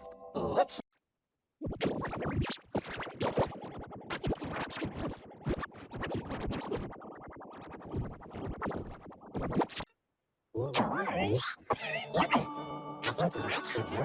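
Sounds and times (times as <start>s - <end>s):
scrambled cartoon voices and music: 0.0s - 0.8s, 10.6s - 14.0s.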